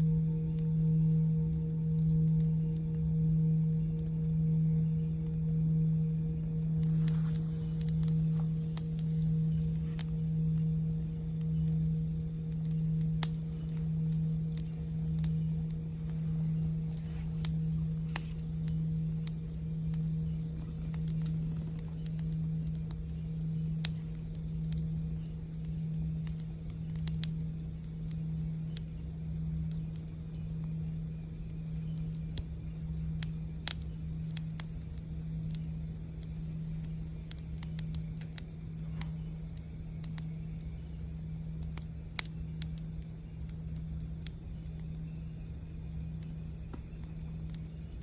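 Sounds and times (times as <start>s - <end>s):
singing bowl ringing: 0.0s - 12.1s
campfire crackling and popping: 0.0s - 48.0s.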